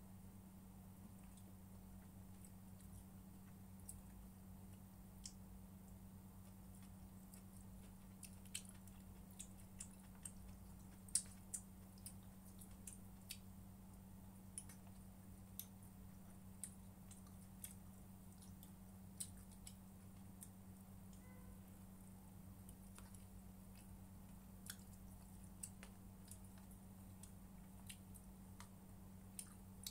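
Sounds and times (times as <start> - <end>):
steady low hum: 0.0 - 29.9
faint chewing: 1.0 - 29.9
mouth clicks and smacks: 29.4 - 29.9.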